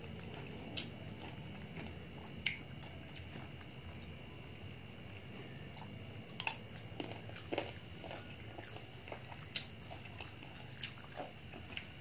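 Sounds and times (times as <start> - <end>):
crisp crunches of chewing mango: 0.0 - 12.0.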